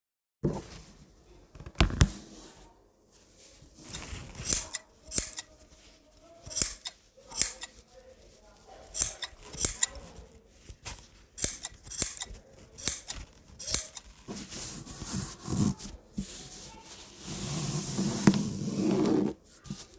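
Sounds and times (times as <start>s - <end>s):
fabric handling: 0.4s - 19.9s
scissors snipping cloth: 3.9s - 5.5s, 6.5s - 7.8s, 8.9s - 10.0s, 11.4s - 14.2s.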